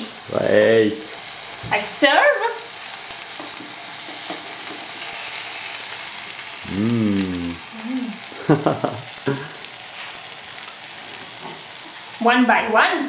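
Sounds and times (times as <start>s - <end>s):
meat sizzling in frying pan: 0.0s - 13.0s
person humming: 6.6s - 9.6s.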